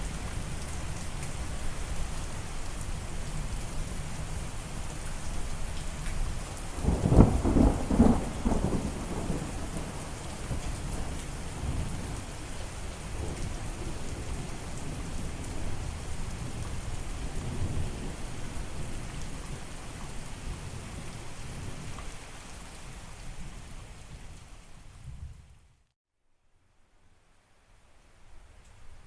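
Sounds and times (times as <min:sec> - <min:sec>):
heavy rain hissing: 0:00.0 - 0:24.0
rolling thunder rumble: 0:06.8 - 0:12.4.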